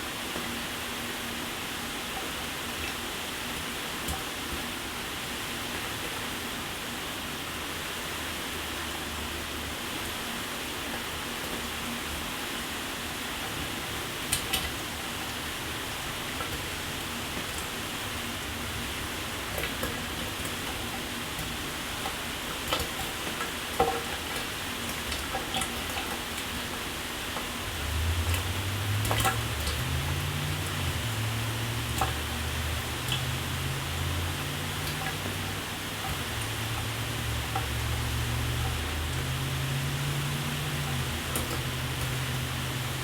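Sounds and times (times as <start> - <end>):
water drips and splatters: 13.0 - 43.0
shower water spraying: 27.4 - 43.0.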